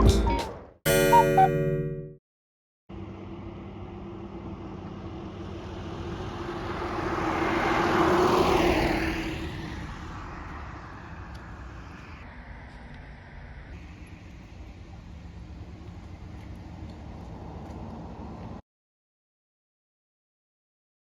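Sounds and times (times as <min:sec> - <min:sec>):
aircraft engine passing overhead: 0:02.9 - 0:12.6.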